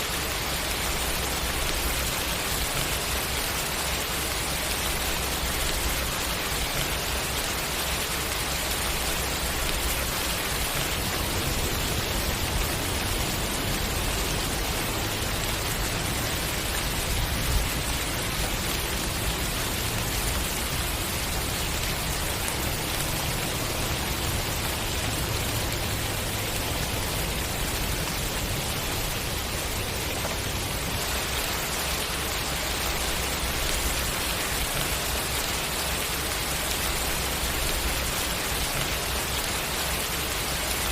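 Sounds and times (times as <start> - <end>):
rain pattering on a surface: 0.0 - 40.9.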